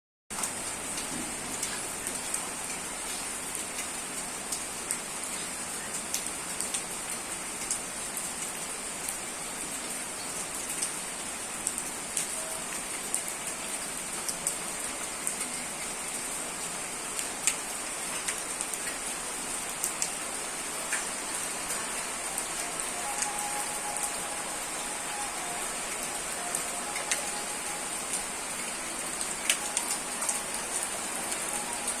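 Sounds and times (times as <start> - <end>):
steady rain-like hiss: 0.3 - 32.0.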